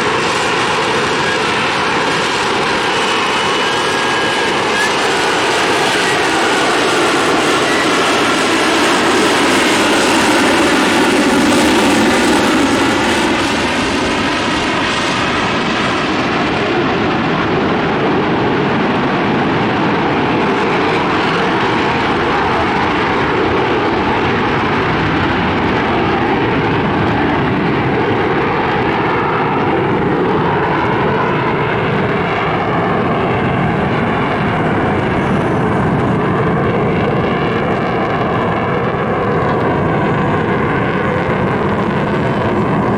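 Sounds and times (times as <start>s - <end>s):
airplane roar: 0.0s - 42.9s.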